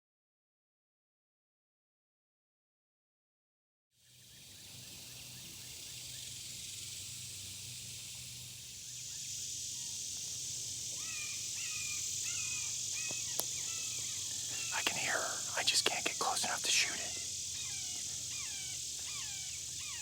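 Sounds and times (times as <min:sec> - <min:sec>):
steady high hiss: 0:04.5 - 0:20.0
hawk calling: 0:10.9 - 0:20.0.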